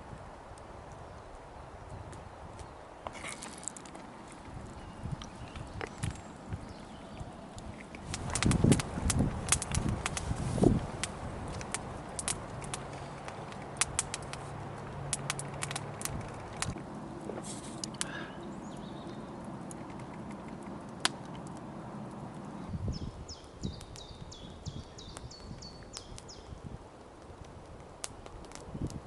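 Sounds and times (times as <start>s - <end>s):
sharp clicks: 7.6s - 10.3s, 11.0s - 16.8s
small bird calling: 18.0s - 20.8s.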